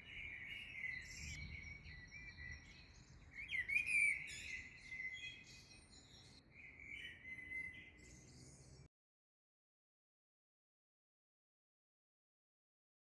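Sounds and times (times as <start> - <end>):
songbirds chirping and singing: 0.0 - 8.9.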